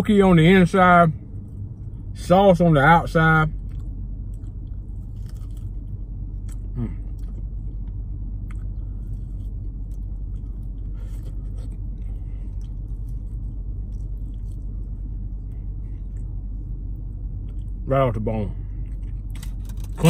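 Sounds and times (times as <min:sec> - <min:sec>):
vehicle cab rumble: 0:00.0 - 0:20.0
person chewing: 0:03.6 - 0:17.8, 0:18.7 - 0:19.9.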